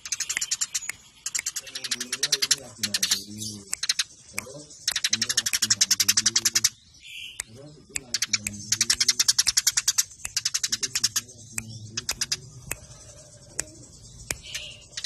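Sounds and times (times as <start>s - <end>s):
sparrows chirping: 0.0s - 15.0s.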